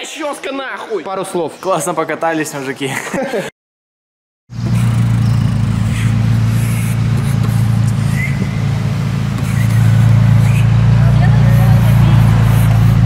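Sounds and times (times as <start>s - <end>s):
car engine idling: 4.5s - 13.0s.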